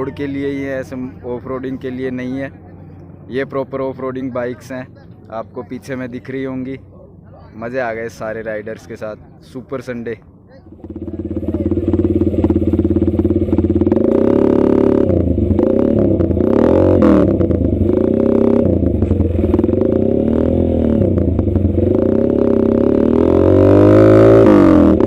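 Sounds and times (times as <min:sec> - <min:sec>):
motorcycle engine revving: 0:10.6 - 0:25.0.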